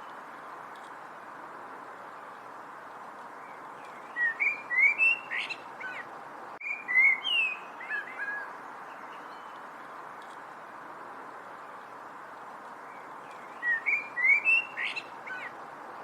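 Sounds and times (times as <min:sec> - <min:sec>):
steady background hiss: 0:00.0 - 0:16.0
songbird whistling: 0:04.0 - 0:06.0, 0:06.6 - 0:08.5, 0:13.4 - 0:15.5.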